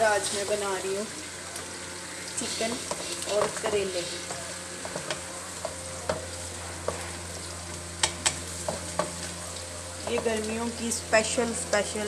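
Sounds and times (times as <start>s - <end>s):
food sizzling in a pan: 0.0s - 12.0s
wooden spoon scraping a pan: 2.4s - 9.4s.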